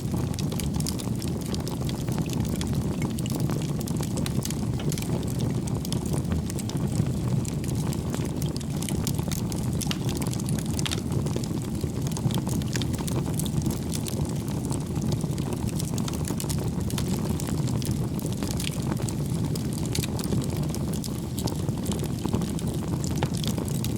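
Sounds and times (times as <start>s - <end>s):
logs crackling and popping: 0.0s - 23.9s
wood fire burning: 0.0s - 23.9s.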